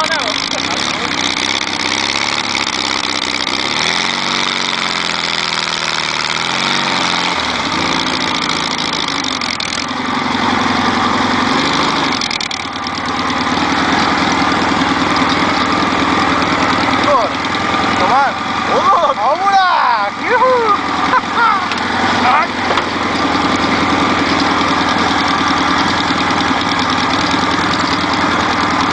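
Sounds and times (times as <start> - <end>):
buggy engine running: 0.0 - 28.9
loud noisy rattle: 0.0 - 28.9.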